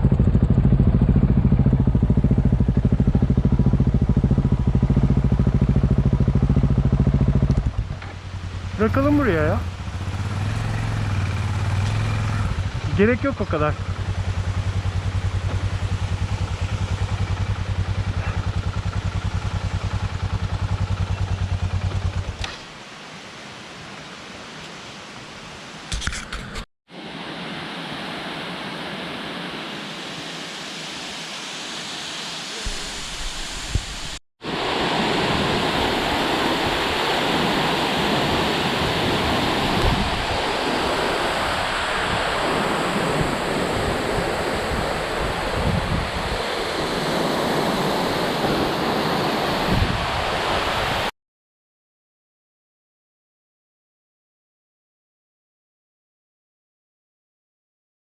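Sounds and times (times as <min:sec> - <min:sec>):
motorcycle engine idling: 0:00.0 - 0:22.4
waterfall rushing: 0:26.9 - 0:51.1.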